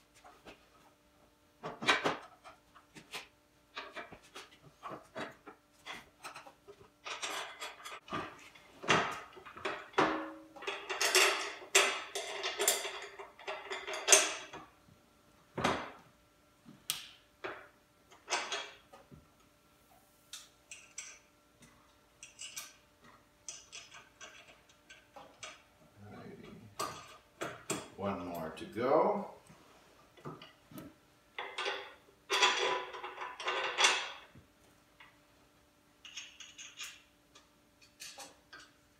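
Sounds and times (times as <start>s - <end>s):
metal parts and tools clinking: 4.8s - 8.2s, 8.9s - 14.6s, 20.7s - 21.3s, 22.2s - 22.8s, 23.5s - 25.6s, 31.4s - 34.3s, 36.0s - 38.8s.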